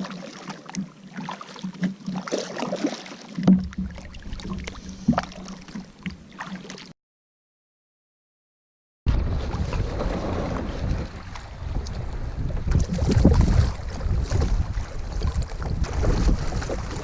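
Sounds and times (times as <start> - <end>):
paddle splashes: 0.0 - 6.9, 9.1 - 17.0
paddle knocking against hull: 3.4 - 6.7.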